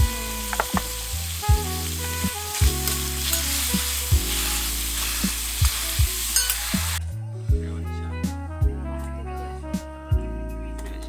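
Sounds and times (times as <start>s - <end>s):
food sizzling on a griddle: 0.0s - 7.0s
background music with beat: 0.0s - 11.0s.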